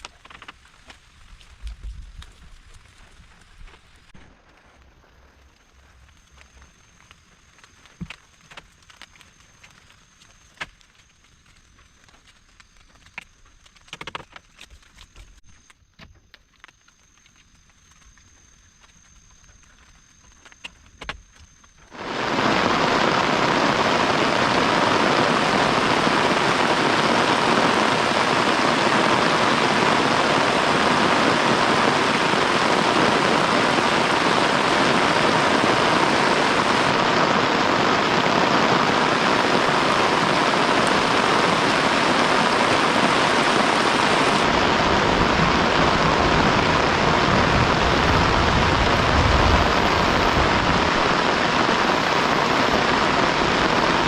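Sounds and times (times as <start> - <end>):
heavy rain: 21.9 - 54.0
low rumble: 39.6 - 54.0.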